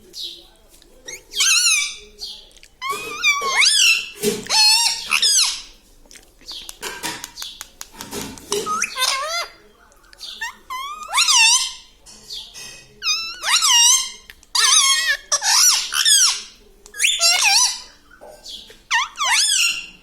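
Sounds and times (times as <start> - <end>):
parrot warbling calls: 1.1 - 2.0, 2.8 - 5.7, 8.6 - 9.6, 10.3 - 11.9, 13.0 - 17.9, 18.9 - 20.0.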